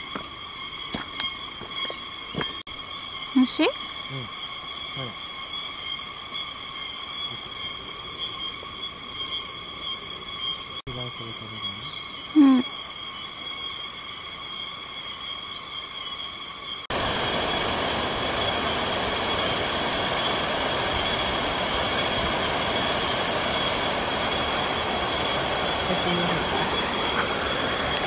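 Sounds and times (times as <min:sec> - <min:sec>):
insects trilling: 0:00.0 - 0:28.0
water pouring over waterfall: 0:16.9 - 0:28.0.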